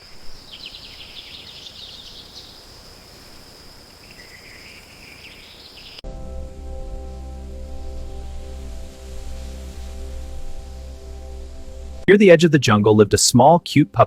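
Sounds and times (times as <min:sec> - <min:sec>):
bird chirps: 0:00.0 - 0:06.0
high insect drone: 0:00.0 - 0:12.0
music: 0:06.0 - 0:14.0.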